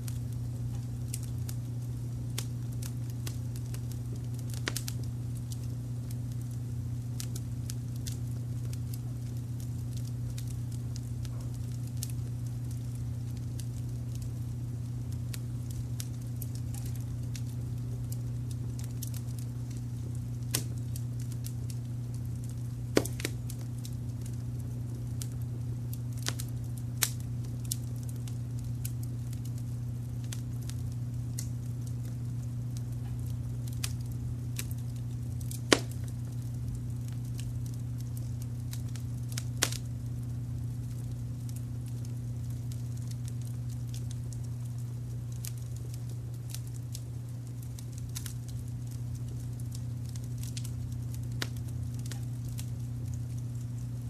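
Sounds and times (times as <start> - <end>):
wood fire crackling: 0.0 - 54.0
sharp pops: 23.0 - 23.4, 35.6 - 36.0.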